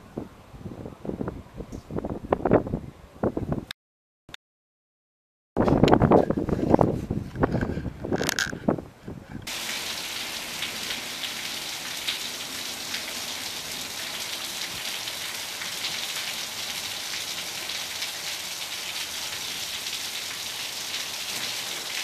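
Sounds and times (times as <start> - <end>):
heavy rain pouring on street: 9.5 - 22.0.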